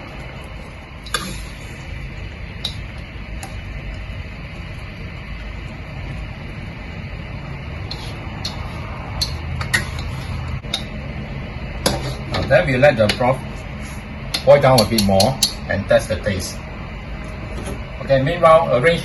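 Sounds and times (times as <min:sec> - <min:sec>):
broth boiling in a pot: 0:00.0 - 0:19.0
utensil clinking against pot: 0:14.3 - 0:15.7.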